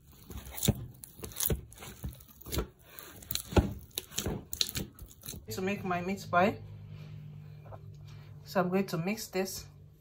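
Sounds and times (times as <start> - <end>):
hands kneading bread dough: 0.0 - 6.2.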